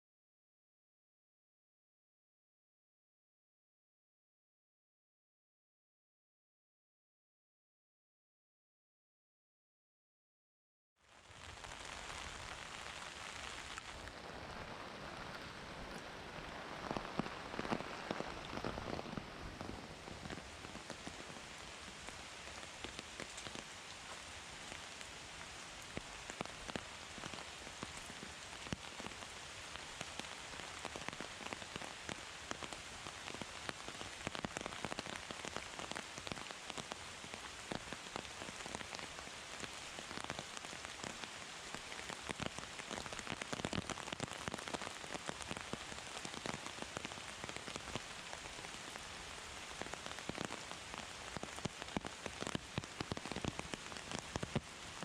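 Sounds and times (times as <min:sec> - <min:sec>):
heavy rain hissing: 0:11.0 - 0:55.0.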